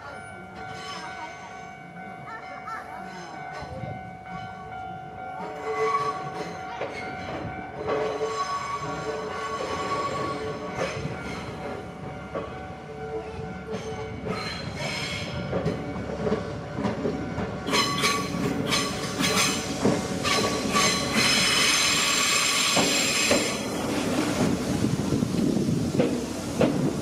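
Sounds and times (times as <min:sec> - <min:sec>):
electric train arriving: 0:00.0 - 0:27.0
train wheels clattering: 0:13.6 - 0:27.0.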